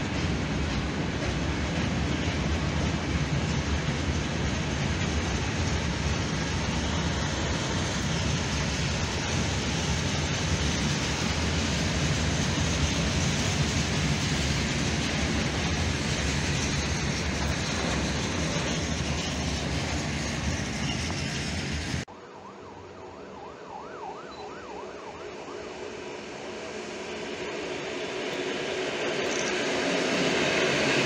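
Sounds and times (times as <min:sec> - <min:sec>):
freight train rumbling past: 0:00.0 - 0:22.1, 0:24.8 - 0:31.0
electric train approaching: 0:00.0 - 0:31.0
siren wailing: 0:22.1 - 0:26.7.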